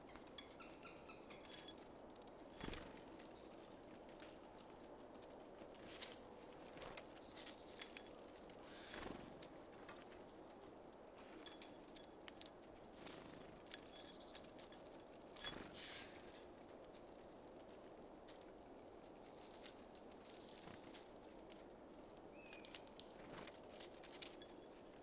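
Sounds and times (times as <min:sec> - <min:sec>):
faint high bird chirps: 0:00.0 - 0:01.8
birds tapping and pecking seeds: 0:00.0 - 0:25.0.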